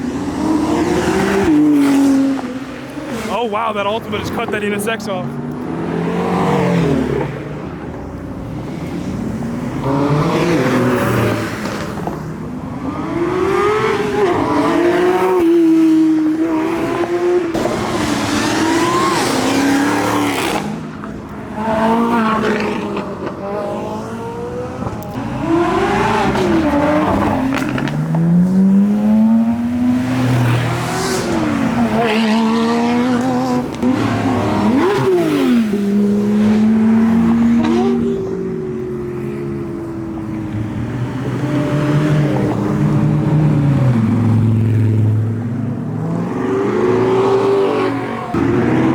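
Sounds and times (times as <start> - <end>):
cars accelerating hard: 0.0 - 48.9.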